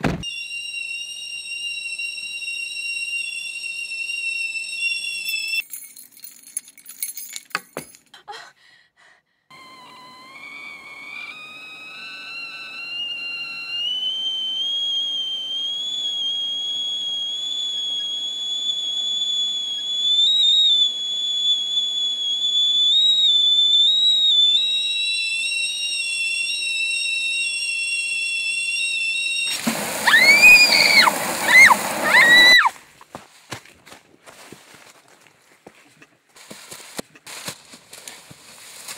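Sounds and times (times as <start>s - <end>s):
tea kettle whistling: 0.0s - 5.7s, 9.5s - 32.7s
harsh burst with shrieks: 9.5s - 16.7s, 29.2s - 32.7s.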